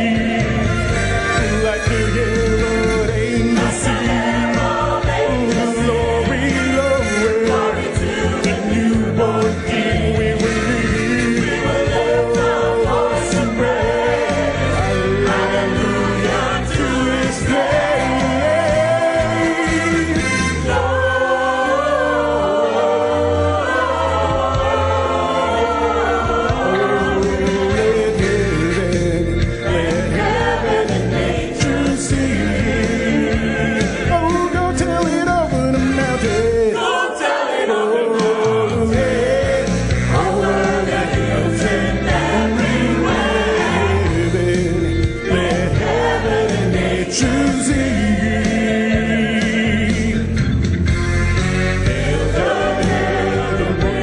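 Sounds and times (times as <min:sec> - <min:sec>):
band accompaniment with bass: 0:00.0 - 0:36.9, 0:38.1 - 0:54.0
gospel choir singing: 0:00.0 - 0:54.0.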